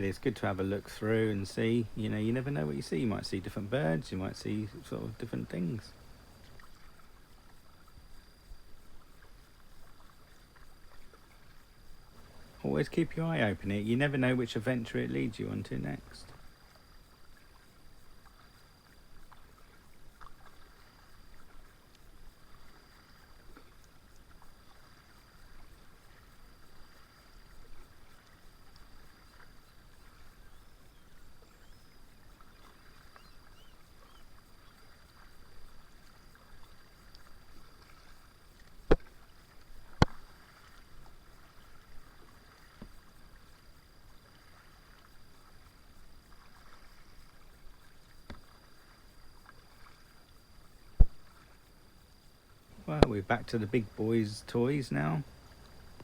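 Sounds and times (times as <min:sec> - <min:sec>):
kayak paddle strokes in water: 0:00.0 - 0:56.0.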